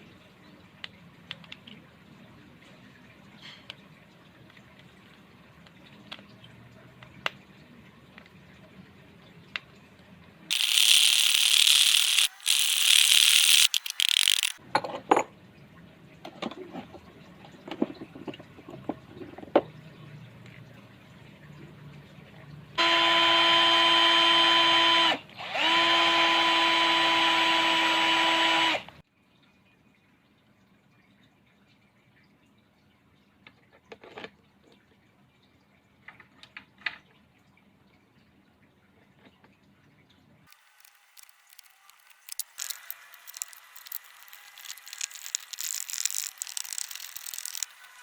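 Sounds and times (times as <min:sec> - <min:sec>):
electric drill motor whining: 0:10.5 - 0:14.6, 0:22.8 - 0:28.8.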